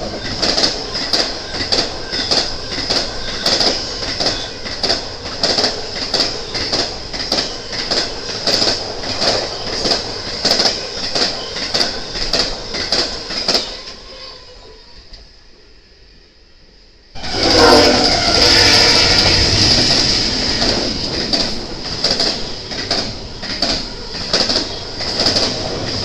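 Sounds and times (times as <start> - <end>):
wheels clacking over rail joints: 0.0 - 14.3, 17.6 - 26.0
high wheel squeal: 17.2 - 19.8.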